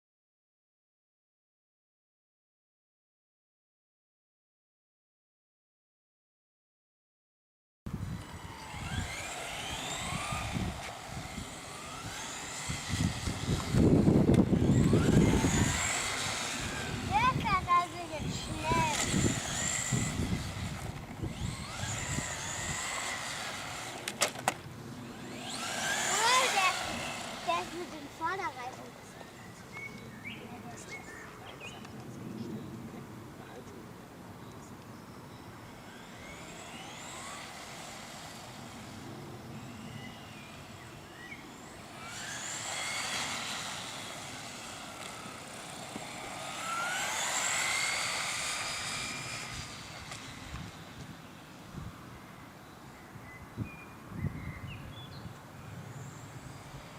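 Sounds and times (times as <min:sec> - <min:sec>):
toy car electric motor whining: 0:08.0 - 0:29.5, 0:35.7 - 0:51.4.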